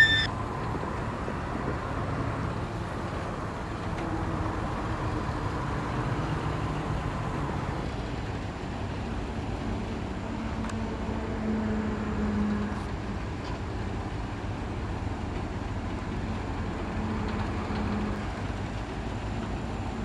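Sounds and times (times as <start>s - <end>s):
heavy machinery diesel engine: 0.0s - 20.0s.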